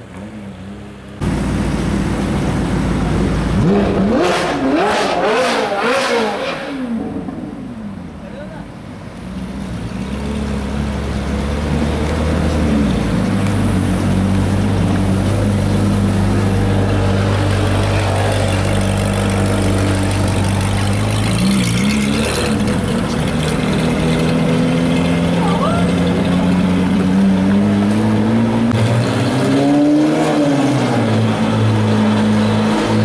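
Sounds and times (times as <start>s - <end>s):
car engine running at low revs: 1.0s - 5.9s.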